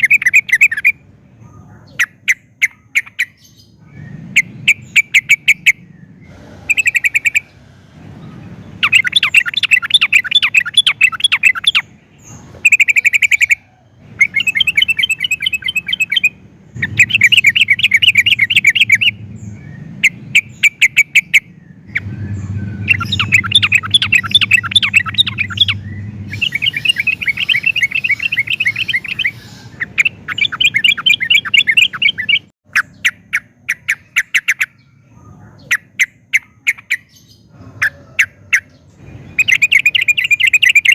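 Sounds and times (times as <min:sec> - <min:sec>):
bulbul singing chattering phrases: 0:00.0 - 0:40.9.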